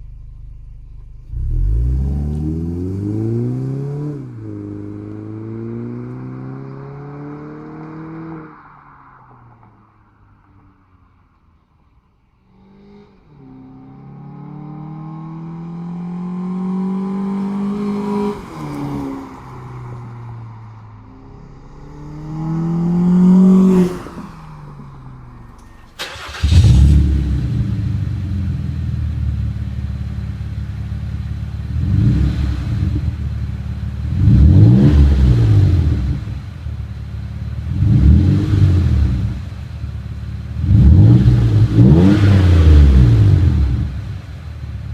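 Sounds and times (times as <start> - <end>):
car engine idling and revving: 0.0 - 44.9
car accelerating past: 0.9 - 11.3, 12.5 - 28.7.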